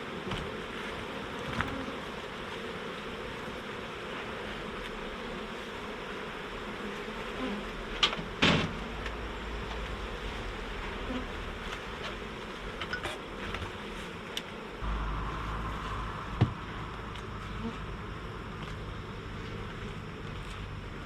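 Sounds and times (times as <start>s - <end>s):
honey bees buzzing: 0.0s - 21.0s
sharp knocks: 16.0s - 17.3s.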